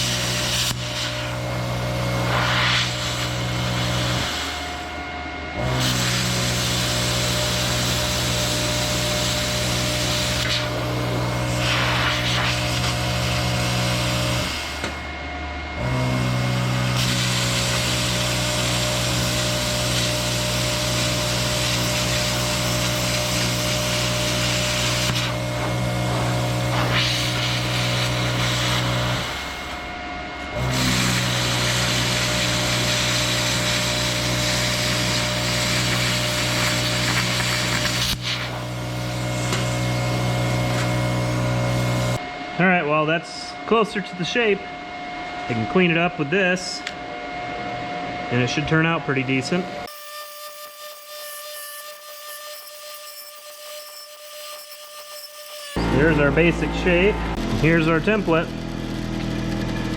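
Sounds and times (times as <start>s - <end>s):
plasma cutter hissing: 0.0s - 1.5s, 2.2s - 5.0s, 5.7s - 15.0s, 16.9s - 29.9s, 30.6s - 42.2s
low machine hum: 0.0s - 49.9s, 55.8s - 59.9s.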